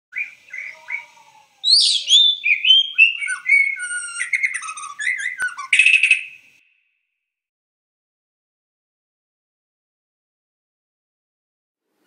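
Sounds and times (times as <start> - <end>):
bird song warbling: 0.1 - 6.9.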